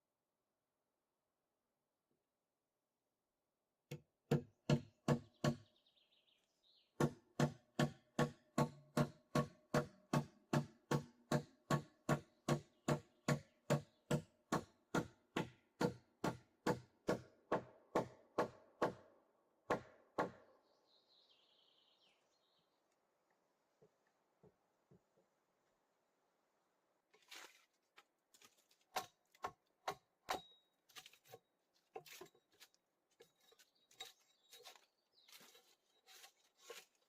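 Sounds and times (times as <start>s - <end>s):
bird chirping: 20.6s - 23.0s, 33.2s - 36.8s.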